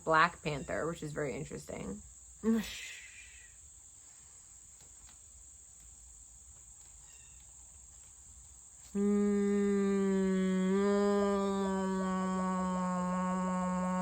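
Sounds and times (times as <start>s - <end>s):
crickets chirring: 0.0s - 14.0s
woman humming a low tone: 8.9s - 14.0s.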